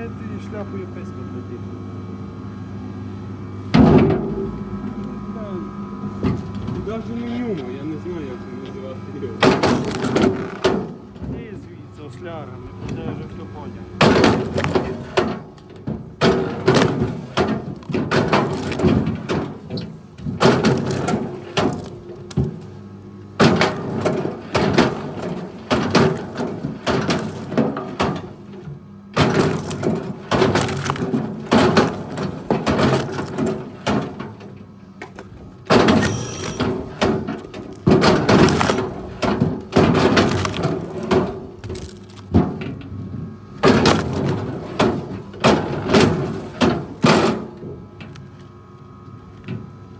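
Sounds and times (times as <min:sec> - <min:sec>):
wood cracking and breaking: 0:09.4 - 0:11.6, 0:14.0 - 0:22.7, 0:23.4 - 0:48.5.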